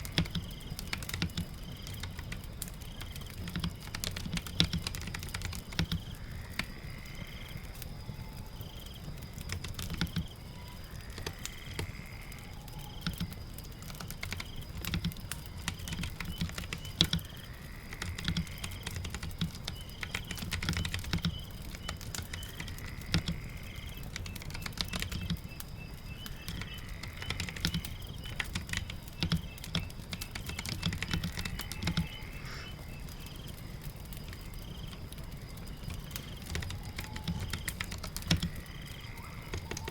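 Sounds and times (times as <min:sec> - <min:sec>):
typing on computer keyboard: 0:00.0 - 0:06.7, 0:09.4 - 0:12.0, 0:12.7 - 0:17.4, 0:18.0 - 0:25.6, 0:26.2 - 0:32.2, 0:35.8 - 0:39.9
crackling fire: 0:00.0 - 0:39.9
rain: 0:00.0 - 0:39.9
faint bird chirps: 0:02.9 - 0:39.9.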